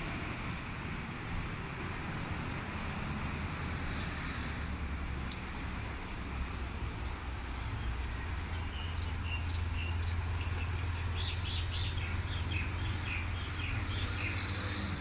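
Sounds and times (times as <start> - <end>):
small birds chirping: 7.8 - 14.8.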